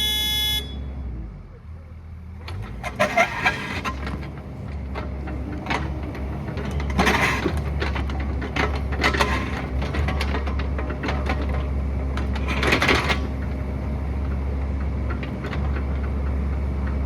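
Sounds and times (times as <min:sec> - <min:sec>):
excavator engine running: 0:00.0 - 0:17.0
bucket scraping and knocking rock: 0:05.7 - 0:11.4.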